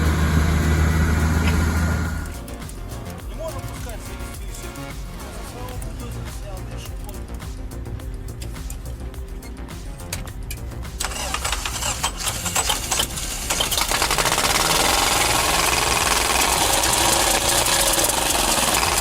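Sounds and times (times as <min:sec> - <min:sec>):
bulldozer diesel engine: 0:00.0 - 0:02.4, 0:11.0 - 0:19.0.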